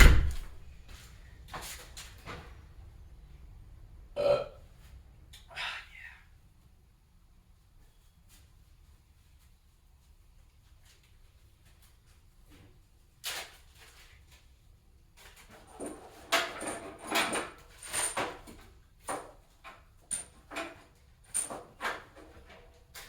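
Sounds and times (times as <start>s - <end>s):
objects knocking and rattling: 15.2s - 23.0s.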